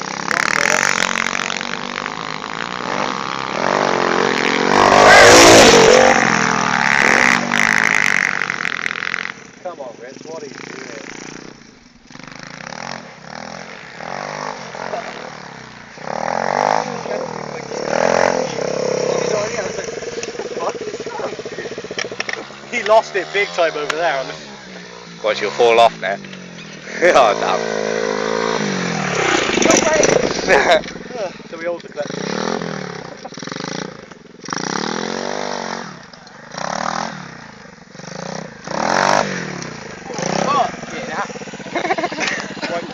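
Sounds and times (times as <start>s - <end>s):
pit bike engine revving: 0.0s - 42.9s.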